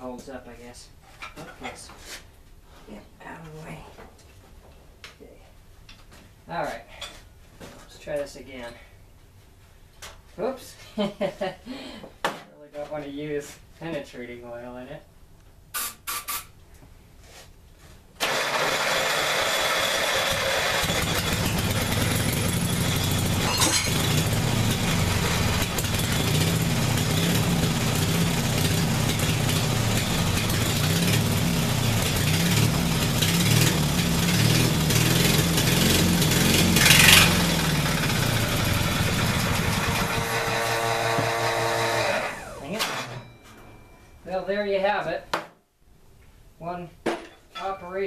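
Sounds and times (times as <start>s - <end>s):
small engine starting and running: 18.2s - 43.4s.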